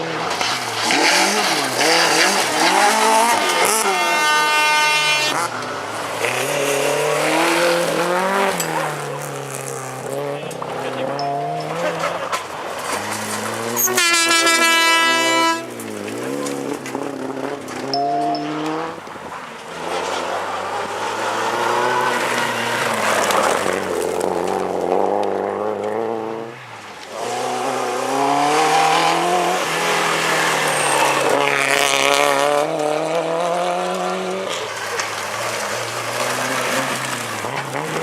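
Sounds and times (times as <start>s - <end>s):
rally car engines revving: 0.0s - 38.0s
loud high-pitched tone: 17.9s - 19.0s.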